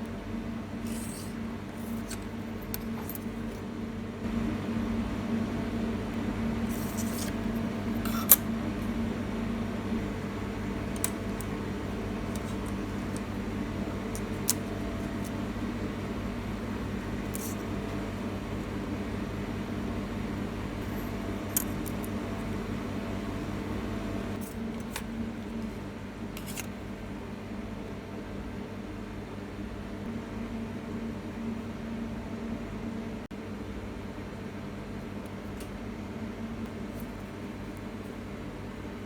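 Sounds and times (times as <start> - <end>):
low fan-like hum: 0.0 - 39.0.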